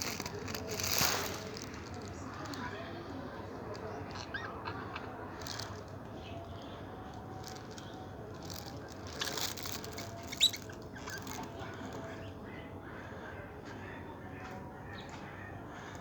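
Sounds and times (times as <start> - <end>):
canaries chirping: 7.4 - 12.3.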